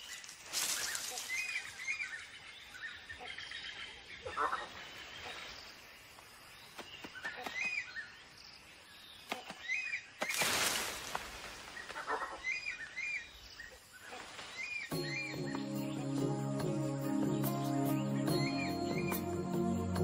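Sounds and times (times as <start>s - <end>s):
foliage rustling: 0.0s - 2.3s, 10.1s - 13.0s, 13.8s - 14.9s
bird chirping: 0.0s - 10.4s, 11.7s - 20.0s
faint background bird calls: 0.0s - 20.0s.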